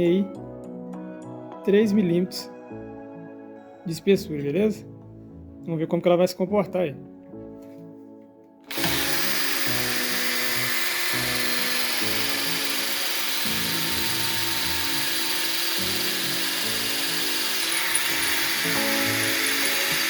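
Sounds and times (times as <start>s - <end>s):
background music: 0.0s - 20.0s
drill drilling through metal: 8.7s - 20.0s.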